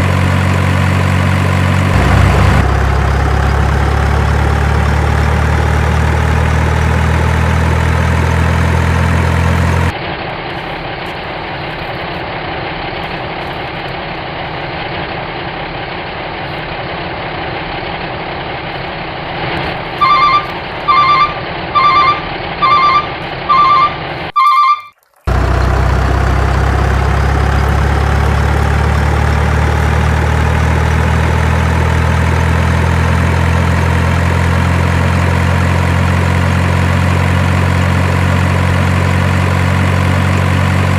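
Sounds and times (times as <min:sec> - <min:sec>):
truck engine idling: 0:00.0 - 0:24.7, 0:25.3 - 0:40.9
reversing alarm beeping: 0:20.0 - 0:25.0.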